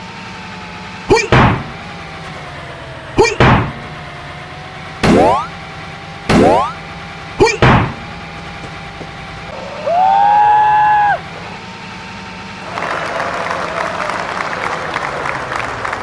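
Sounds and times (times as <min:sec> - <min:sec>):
loud pitched tone: 0:01.1 - 0:01.8, 0:03.2 - 0:03.8, 0:05.0 - 0:05.6, 0:06.3 - 0:06.8
people clapping: 0:12.6 - 0:16.0.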